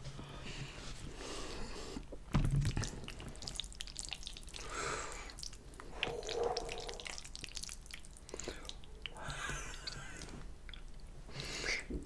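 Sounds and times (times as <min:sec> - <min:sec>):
wet chewing with lip smacks: 0:03.0 - 0:04.7, 0:05.3 - 0:09.3, 0:09.9 - 0:11.5.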